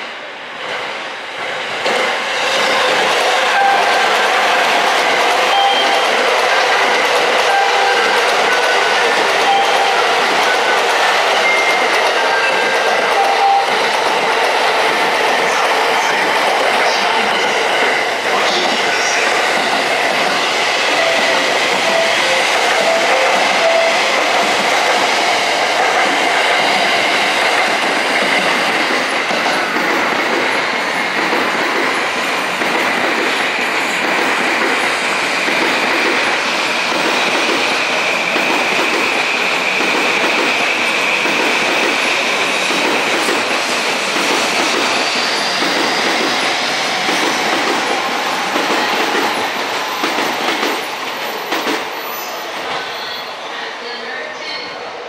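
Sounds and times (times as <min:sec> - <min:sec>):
train wheels rumbling on rails: 0:00.0 - 0:52.9
wheels clickety-clack: 0:38.4 - 0:39.2, 0:39.8 - 0:45.0, 0:45.6 - 0:49.4.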